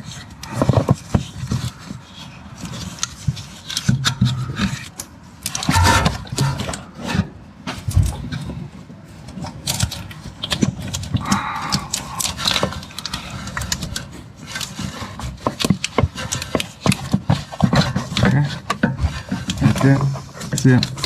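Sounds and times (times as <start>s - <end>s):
rubber rubbing and scraping: 0.0s - 5.0s, 9.8s - 21.0s.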